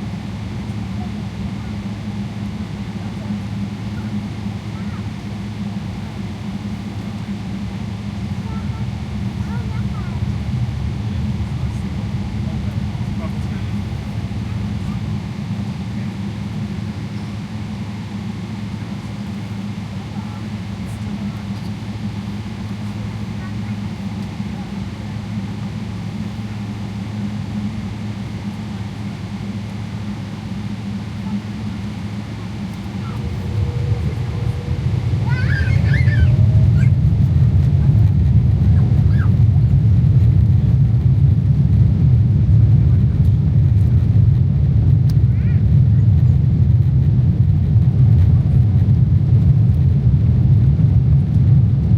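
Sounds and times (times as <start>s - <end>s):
airplane cabin engine hum: 0.0s - 51.9s
airflow noise: 30.7s - 40.2s.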